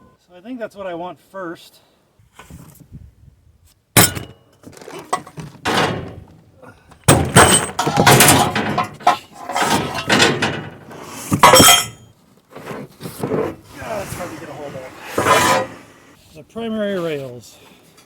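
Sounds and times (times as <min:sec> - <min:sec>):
clattering and rustling: 0:04.0 - 0:16.0
scrape: 0:10.9 - 0:11.4, 0:12.5 - 0:18.0.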